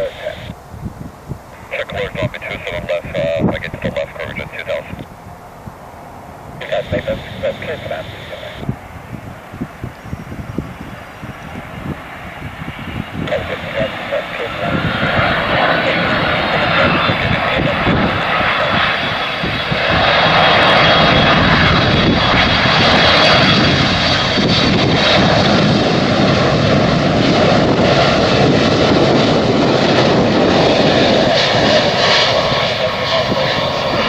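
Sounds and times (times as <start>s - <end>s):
jet engines of landing plane: 0.0s - 34.0s
faint high whine: 1.4s - 10.2s.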